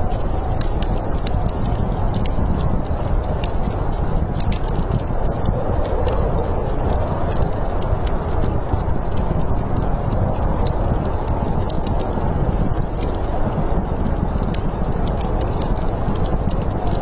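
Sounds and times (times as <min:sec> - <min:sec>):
low rumble of storm wind: 0:00.0 - 0:17.0
wood fire crackling and popping: 0:00.0 - 0:17.0.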